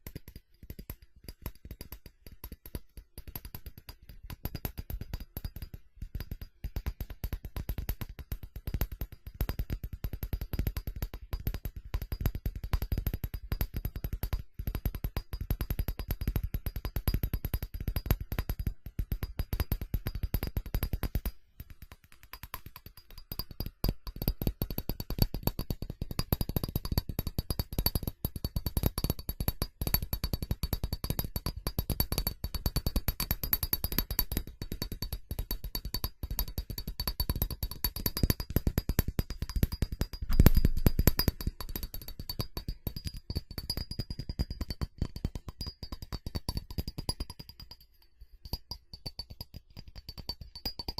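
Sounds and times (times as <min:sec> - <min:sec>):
fast tapping on ceramic: 0:00.0 - 0:50.9.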